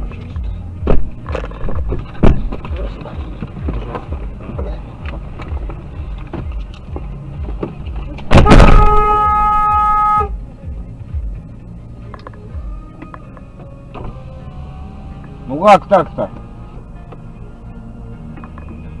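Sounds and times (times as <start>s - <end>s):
car road rumble: 0.0s - 19.0s
car horn: 8.2s - 10.4s
loud bang: 8.3s - 10.3s.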